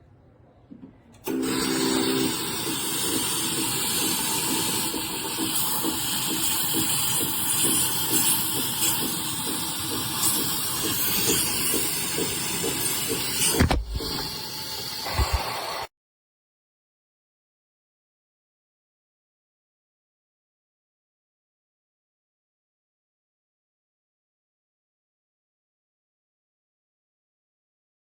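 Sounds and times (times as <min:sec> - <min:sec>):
espresso machine steam hiss: 0:01.3 - 0:15.9.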